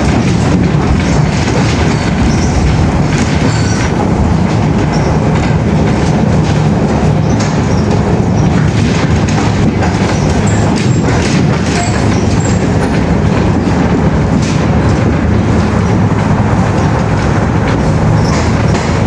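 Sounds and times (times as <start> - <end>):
vehicle rumbling in motion: 0.0 - 19.0
faint short high squeaks: 3.4 - 3.9, 11.7 - 12.6.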